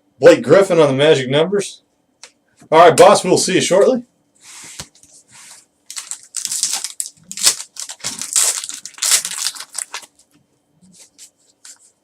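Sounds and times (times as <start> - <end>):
foil wrapper crinkling: 5.9 - 10.4.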